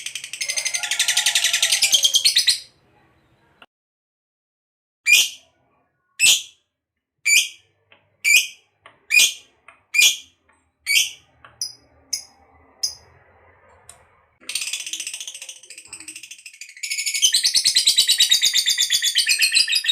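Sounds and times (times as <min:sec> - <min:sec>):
lovebird high-pitched calls: 0:05.1 - 0:05.4, 0:07.3 - 0:07.6, 0:08.2 - 0:10.2, 0:10.9 - 0:13.0, 0:16.2 - 0:19.9.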